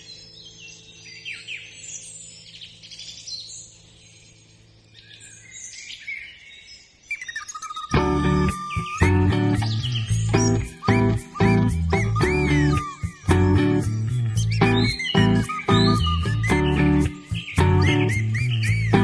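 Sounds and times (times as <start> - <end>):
songbirds chirping: 0.0 - 19.0
music with plucked guitar: 7.9 - 19.0.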